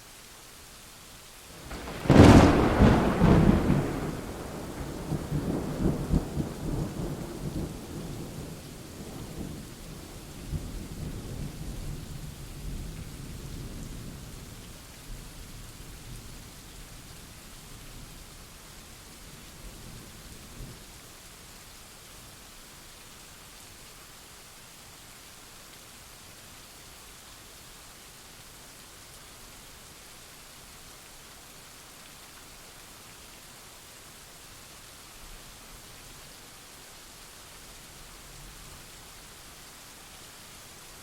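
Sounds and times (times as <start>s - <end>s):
rain hissing: 0.1s - 41.0s
thunder clap and rumble: 1.7s - 8.1s.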